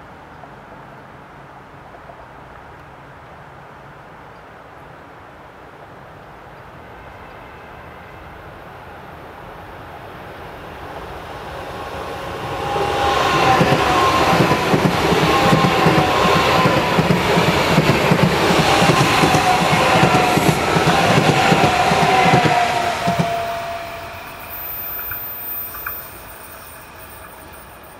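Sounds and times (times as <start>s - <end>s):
high-speed train passing: 0.0s - 27.9s
rail rumble and clatter: 5.9s - 27.9s
high whine falling in pitch: 23.5s - 27.9s.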